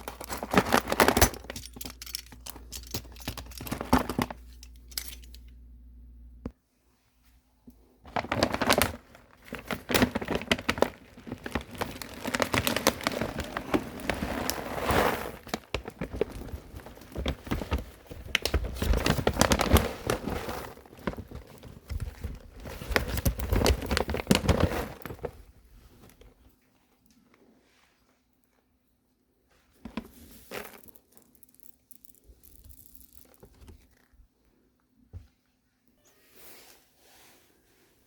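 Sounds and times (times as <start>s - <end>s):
plastic packaging crinkling: 0.0s - 5.4s, 8.1s - 25.4s.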